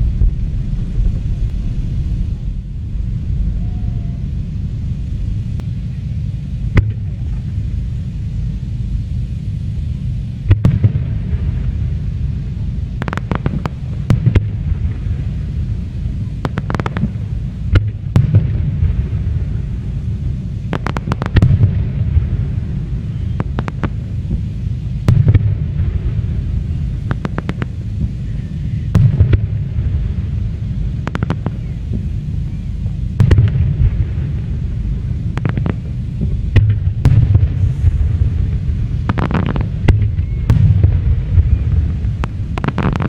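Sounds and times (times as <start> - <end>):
fireworks booming: 0.0 - 43.0
fireworks cracks and bangs: 12.8 - 32.1, 33.2 - 43.0.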